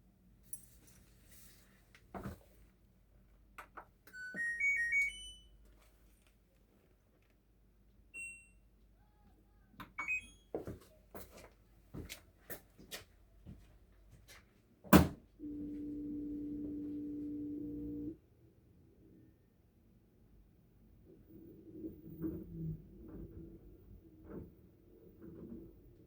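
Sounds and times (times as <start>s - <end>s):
single key beeps: 10.0s - 10.5s.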